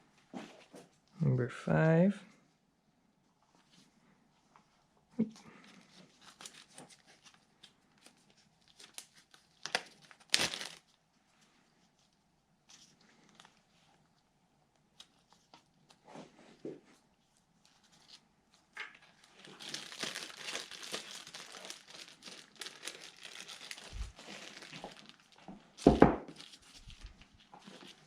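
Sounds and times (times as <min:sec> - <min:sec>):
plastic bag crinkling: 0:08.6 - 0:11.0, 0:18.9 - 0:28.0.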